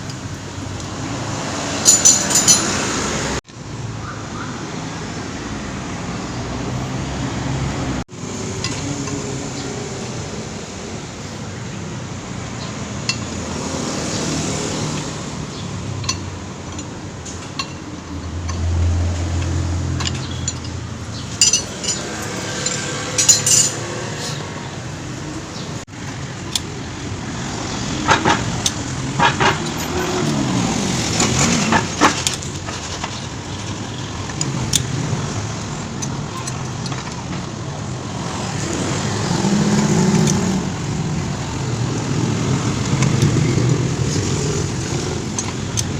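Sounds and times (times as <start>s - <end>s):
passing vehicles: 0.0s - 45.9s
metallic clinks of tools: 1.8s - 2.8s, 19.3s - 23.8s.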